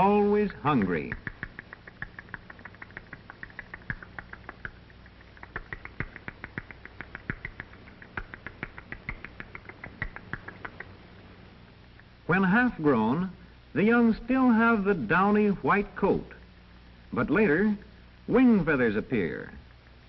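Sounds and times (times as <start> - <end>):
low steady hum: 0.0 - 20.0
baby owls cheeping: 0.9 - 11.2.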